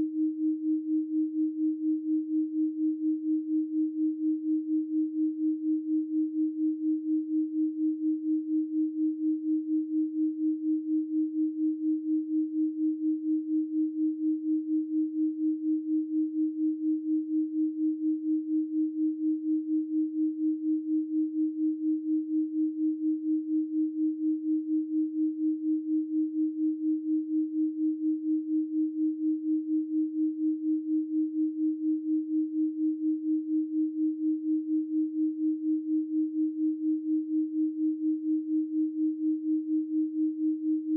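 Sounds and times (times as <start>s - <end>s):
pulsing sine tone: 0.0s - 40.9s.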